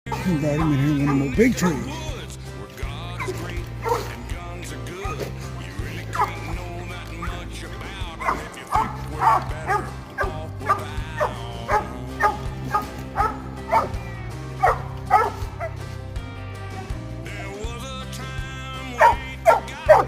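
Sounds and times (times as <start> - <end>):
dog barking: 0.1 - 1.8, 3.2 - 4.2, 6.1 - 6.5, 8.1 - 14.0, 14.6 - 15.8, 18.9 - 20.0
background music: 0.1 - 20.0.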